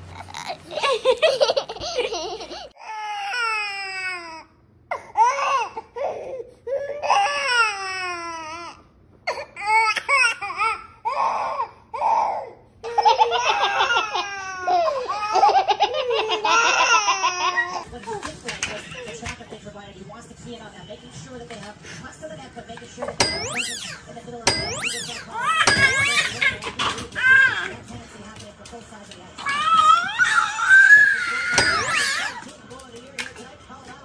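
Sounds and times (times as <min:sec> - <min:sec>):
baby laughing: 0:00.1 - 0:02.8, 0:12.8 - 0:17.9, 0:25.1 - 0:27.8
baby crying: 0:02.8 - 0:17.8, 0:29.4 - 0:32.4.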